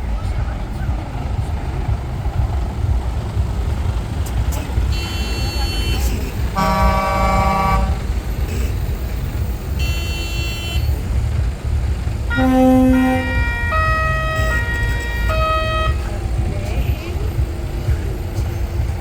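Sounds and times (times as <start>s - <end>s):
diesel truck engines passing: 0.0s - 19.0s
air horn chord blasts: 4.6s - 9.0s, 9.8s - 11.1s, 12.3s - 17.1s
musical horn playing a tune: 4.6s - 9.0s, 9.8s - 11.1s, 12.3s - 16.4s.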